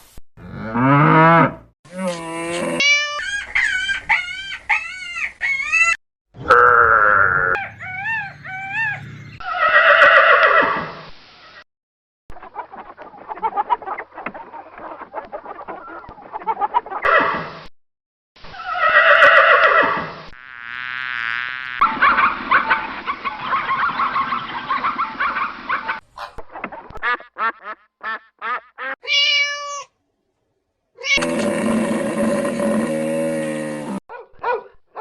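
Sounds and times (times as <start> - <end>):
wavering buzz: 20.3 - 22.2.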